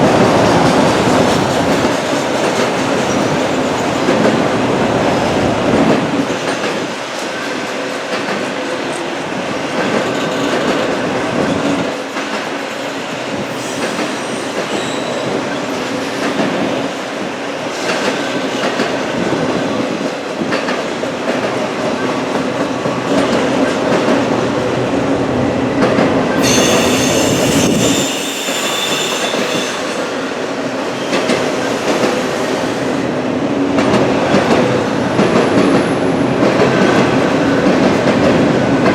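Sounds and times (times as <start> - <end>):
freight train cars rumbling: 0.0 - 38.9
high wheel squeal: 13.5 - 15.4, 26.4 - 30.3.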